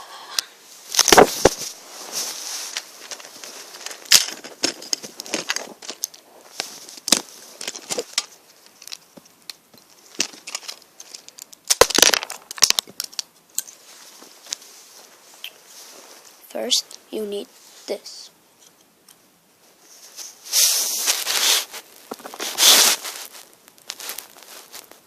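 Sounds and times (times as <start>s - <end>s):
plastic bricks clicking and clattering: 2.7s - 6.2s, 6.9s - 13.7s.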